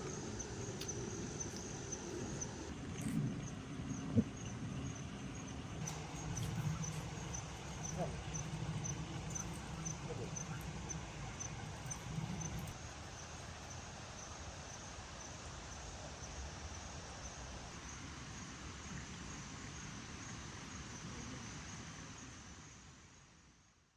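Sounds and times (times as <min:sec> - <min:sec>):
low background rumble: 0:00.0 - 0:13.5
cricket chirping: 0:00.0 - 0:18.5.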